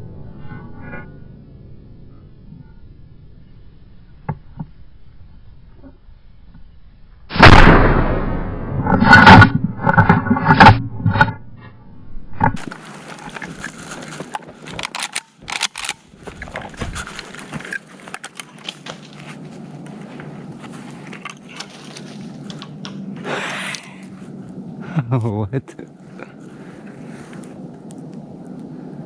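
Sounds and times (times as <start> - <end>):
shotgun blasts: 7.3 - 9.4
sharp cracks: 7.3 - 11.2, 12.4 - 19.2
scattered clicks: 12.5 - 19.0
rustling: 12.6 - 24.6.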